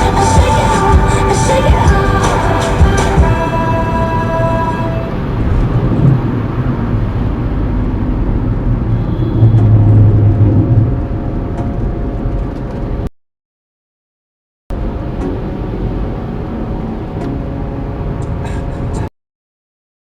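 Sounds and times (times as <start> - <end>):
low hum: 0.0 - 12.8.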